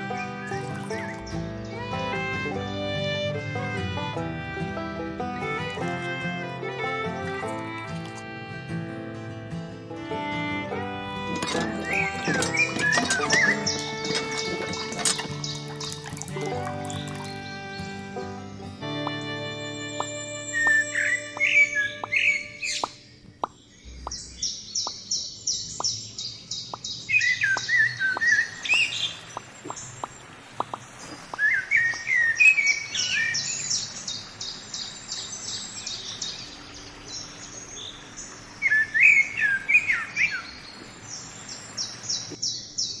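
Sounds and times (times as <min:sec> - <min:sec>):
descending whistled bird calls: 0:19.4 - 0:43.0
short high bird chirps: 0:19.5 - 0:23.0.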